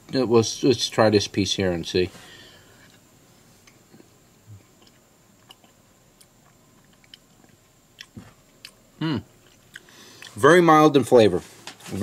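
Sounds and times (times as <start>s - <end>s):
person chewing tomato: 4.7s - 8.8s, 9.4s - 10.4s.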